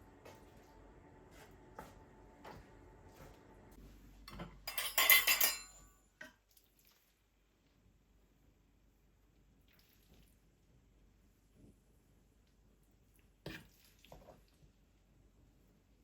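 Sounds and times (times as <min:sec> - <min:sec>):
dishes and glassware clinking: 0:04.3 - 0:06.4.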